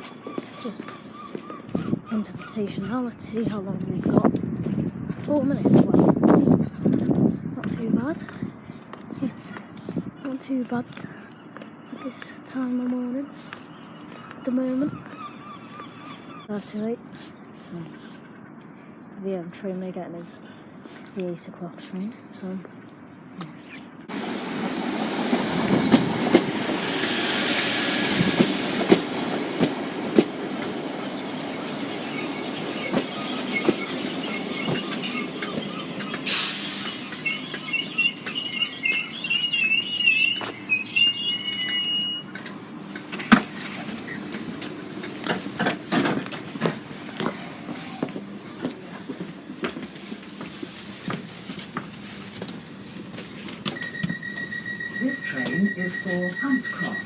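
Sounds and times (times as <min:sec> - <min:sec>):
electric train hissing: 0:24.1 - 0:57.0
high squeal of train brakes: 0:24.1 - 0:57.0.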